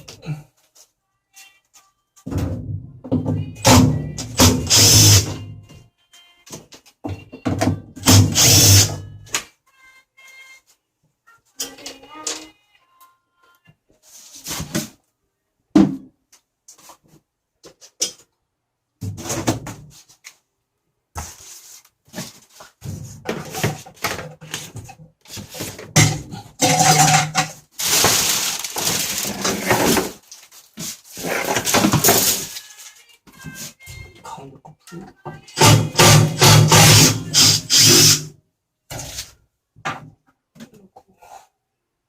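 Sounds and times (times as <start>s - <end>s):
knocks and clatter of machine parts: 23.2s - 30.2s.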